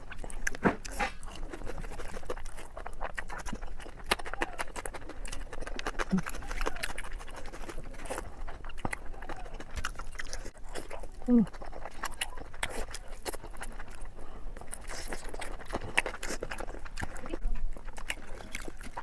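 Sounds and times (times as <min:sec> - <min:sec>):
chewing and mouth noises: 0:00.0 - 0:19.0
faint voice: 0:04.2 - 0:04.7, 0:06.1 - 0:07.0, 0:09.1 - 0:09.7, 0:11.2 - 0:12.5.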